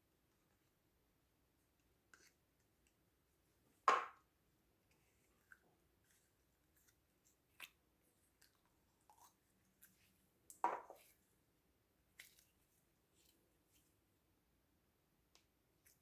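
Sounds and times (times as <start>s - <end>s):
slime squish: 12.1s - 13.4s.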